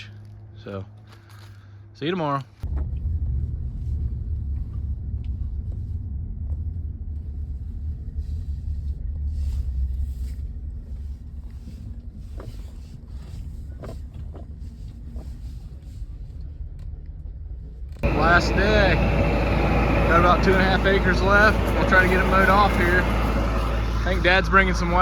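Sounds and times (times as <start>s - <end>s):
heavy vehicle engine rumble: 2.6s - 25.0s.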